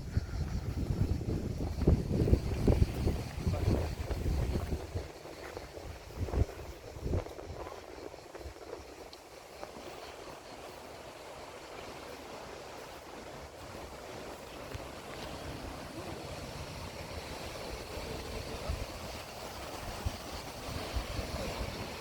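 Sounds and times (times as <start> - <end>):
sea water washing ashore: 0.0 - 22.0
wind buffeting microphone: 0.0 - 22.0.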